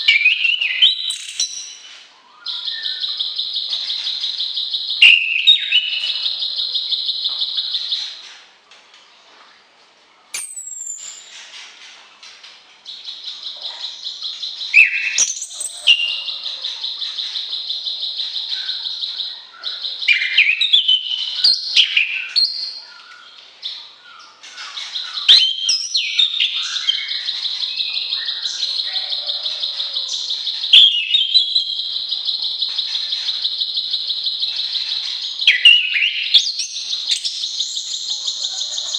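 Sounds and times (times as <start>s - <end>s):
songbirds singing buzzy trills: 0.0s - 8.6s, 10.4s - 38.9s.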